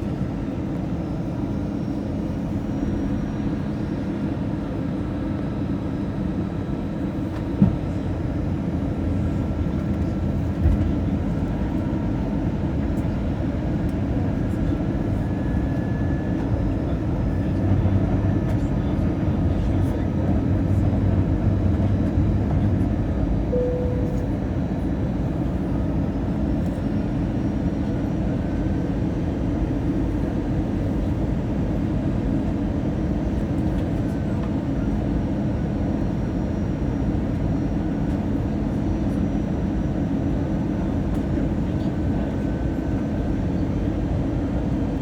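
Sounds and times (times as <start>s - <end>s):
aircraft cabin rumble: 0.0s - 45.0s
short tone: 23.5s - 25.1s.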